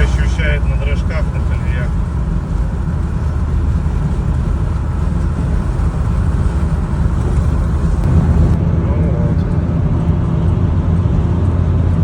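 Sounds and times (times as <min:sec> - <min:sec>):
engine and road noise in cabin: 0:00.0 - 0:12.0.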